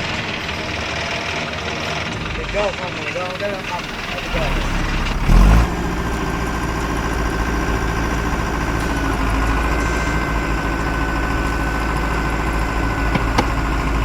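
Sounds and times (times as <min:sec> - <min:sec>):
heavy vehicle engine rumble: 0:00.0 - 0:14.0
steady high whine: 0:02.8 - 0:14.0.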